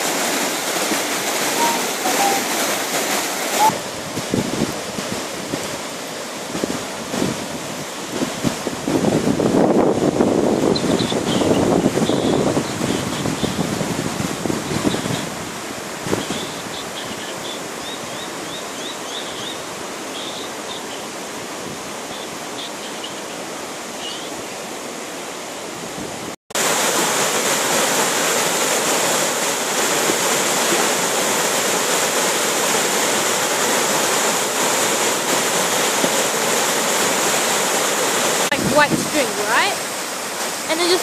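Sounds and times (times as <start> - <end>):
floodwater rushing down creek: 0.0 - 41.0
short high chirps: 1.5 - 2.5, 3.6 - 3.8.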